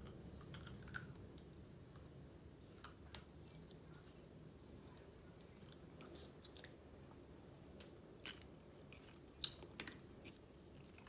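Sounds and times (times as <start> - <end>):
faint chewing: 2.7 - 11.0.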